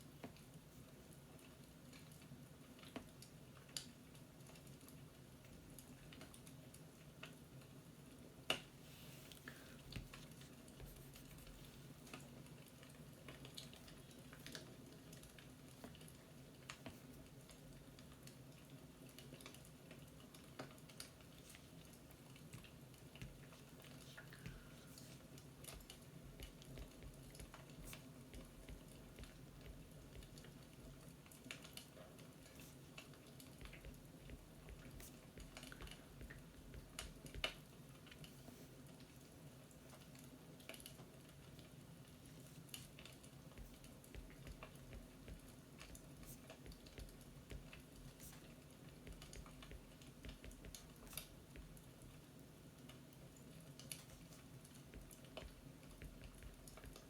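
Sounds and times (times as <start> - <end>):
steady low hum: 42.2 - 51.9.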